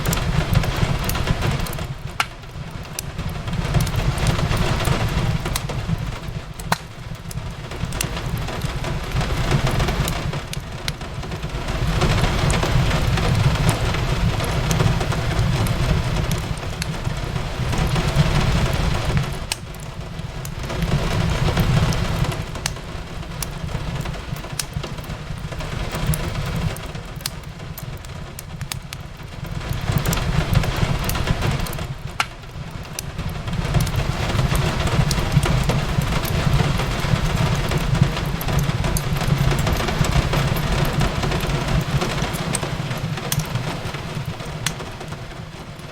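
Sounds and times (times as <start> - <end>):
fireplace crackling and popping: 0.0 - 45.9
rain on a window: 0.0 - 45.9.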